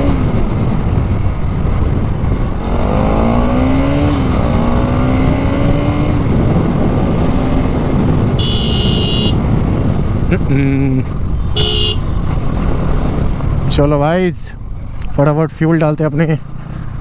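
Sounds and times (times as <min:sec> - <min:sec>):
motorcycle engine revving: 0:00.0 - 0:13.7
wind rush on microphone: 0:00.0 - 0:17.0
high-pitched horn-like beep: 0:08.4 - 0:09.4, 0:11.6 - 0:12.0.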